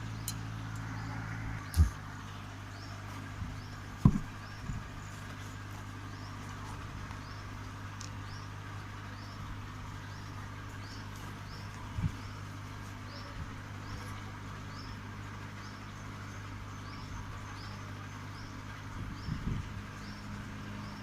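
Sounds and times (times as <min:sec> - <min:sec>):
low hum: 0:00.0 - 0:21.0
light knocks: 0:04.0 - 0:04.3.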